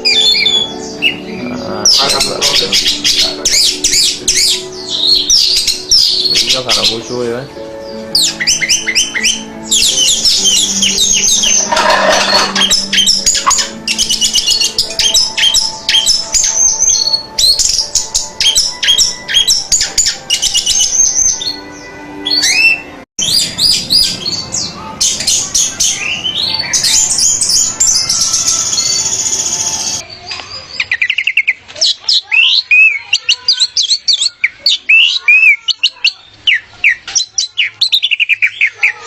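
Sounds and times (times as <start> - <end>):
thrush singing: 0.0 - 30.0.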